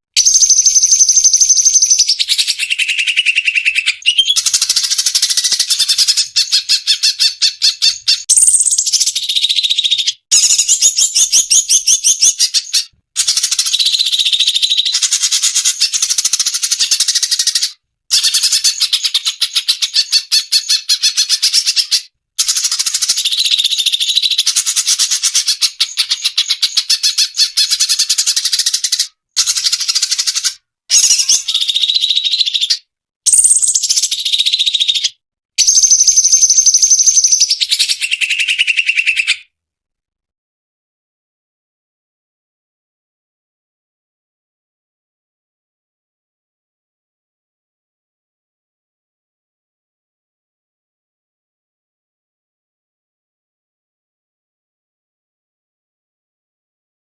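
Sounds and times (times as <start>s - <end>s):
bird chattering song: 0.2s - 39.5s.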